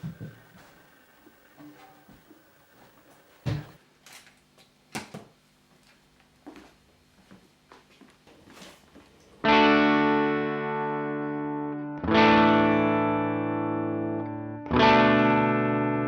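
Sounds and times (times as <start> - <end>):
fuzzy synth-like electric guitar: 9.4 - 16.0.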